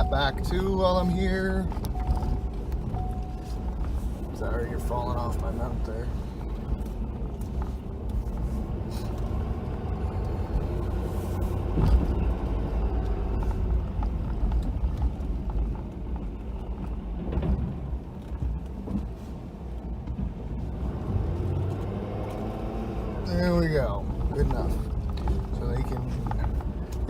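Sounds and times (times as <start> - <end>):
knocks and thump: 17.2 - 19.2.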